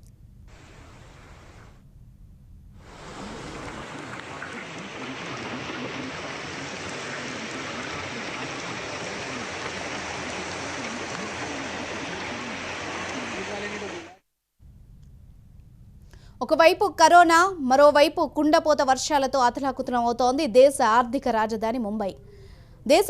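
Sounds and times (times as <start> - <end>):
rushing flood water: 2.9 - 14.2.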